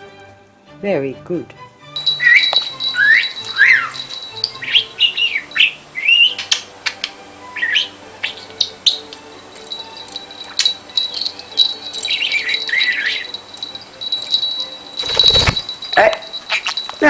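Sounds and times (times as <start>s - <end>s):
soft background music: 0.0s - 17.0s
budgerigar chirping: 2.2s - 9.3s, 12.0s - 13.3s.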